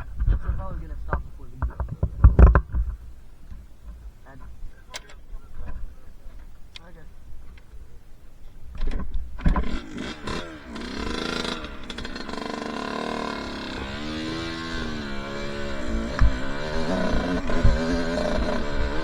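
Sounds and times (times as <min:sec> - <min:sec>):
dirt bike engine revving: 0:09.4 - 0:19.0.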